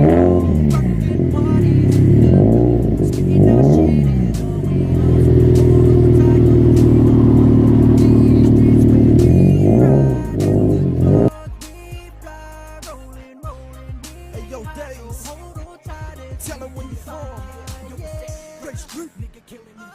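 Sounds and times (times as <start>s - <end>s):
car engine revving: 0.0s - 11.3s.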